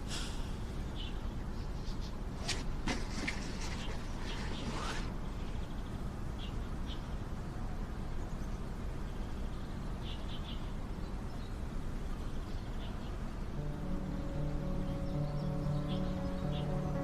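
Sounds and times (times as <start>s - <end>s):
steady low rumble: 3.4s - 17.0s.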